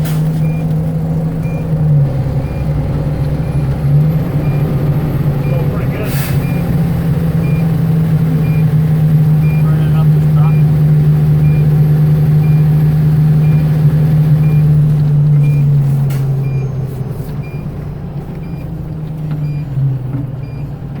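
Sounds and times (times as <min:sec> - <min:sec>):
diesel engine drone: 0:00.0 - 0:21.0
backup alarm beeping: 0:00.4 - 0:00.7, 0:01.4 - 0:07.8, 0:08.4 - 0:15.8, 0:16.4 - 0:16.8.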